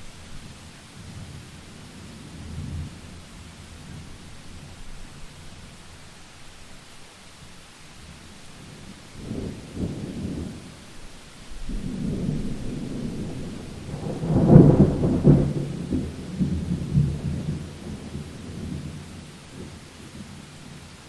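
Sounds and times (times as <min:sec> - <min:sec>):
steady rain: 0:00.0 - 0:21.0
thunder rumbling: 0:08.7 - 0:10.7, 0:11.5 - 0:20.4.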